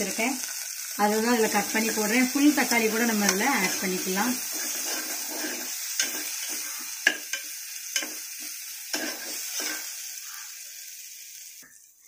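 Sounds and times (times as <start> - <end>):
food sizzling in oil: 0.0 - 12.0
metal spoon scraping pan: 2.9 - 10.0.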